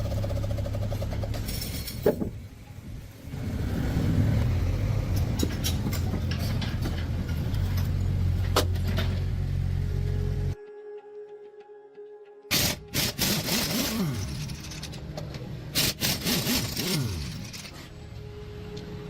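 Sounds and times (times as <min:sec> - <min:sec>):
vehicle engine running: 0:00.0 - 0:01.6, 0:03.2 - 0:10.6.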